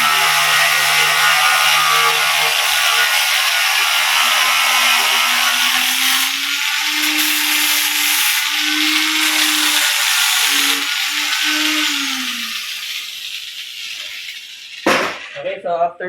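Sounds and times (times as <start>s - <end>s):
angle grinder grinding metal: 0.0s - 15.6s.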